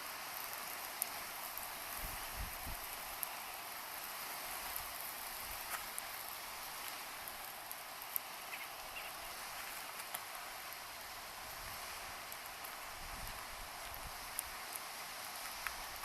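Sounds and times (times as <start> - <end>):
campfire hissing and crackling: 0.0 - 16.0.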